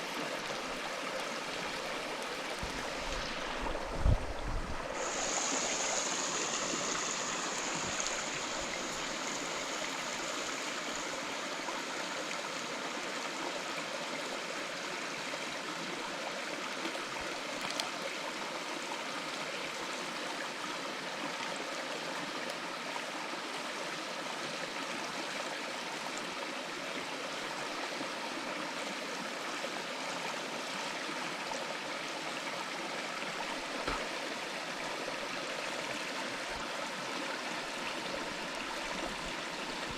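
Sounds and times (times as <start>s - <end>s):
mountain stream rushing: 0.0s - 23.7s, 27.4s - 39.9s
faint clicks: 17.6s - 18.0s.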